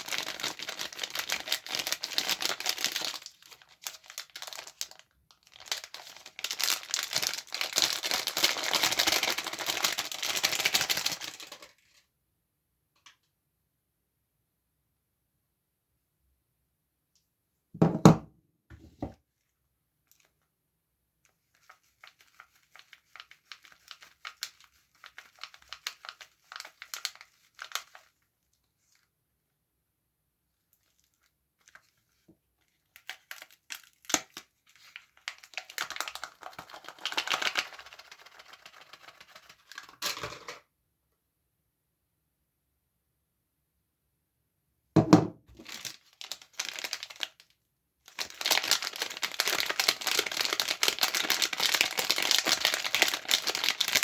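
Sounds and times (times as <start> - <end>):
wrappers crinkling and tearing: 0.0 - 11.8, 21.6 - 28.2, 32.8 - 40.0, 45.6 - 47.4, 48.1 - 54.0.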